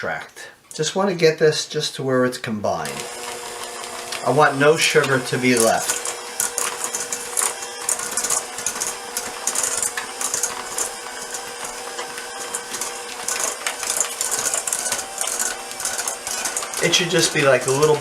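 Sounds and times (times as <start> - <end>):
beaters rattling in bowl: 2.9 - 18.0
electric hand mixer motor hum: 2.9 - 18.0.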